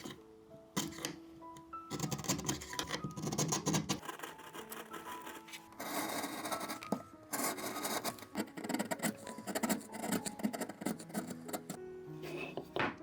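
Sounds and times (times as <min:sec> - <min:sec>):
soft background music: 0:00.0 - 0:13.0
hand tool rasping against wood: 0:06.0 - 0:12.6.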